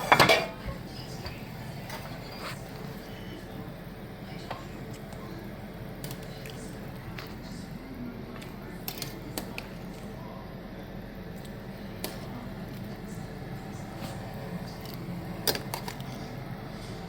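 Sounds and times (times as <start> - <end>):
utensils clicking and clinking: 14.0 - 16.3.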